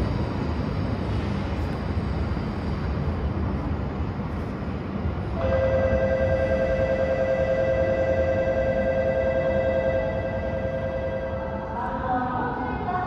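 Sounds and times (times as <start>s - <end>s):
train rumbling: 0.0s - 13.0s
steady ringing tone: 5.4s - 12.1s.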